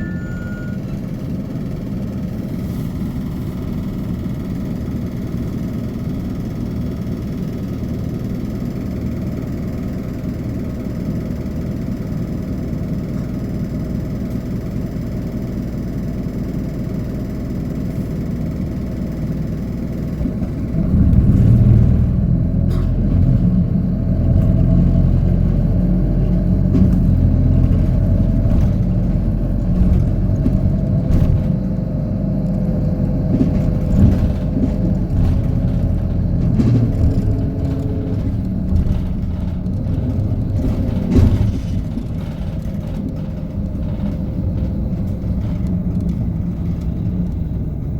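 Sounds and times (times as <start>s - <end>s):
bus diesel engine: 0.0s - 47.9s
knocks and rattles: 20.2s - 47.5s.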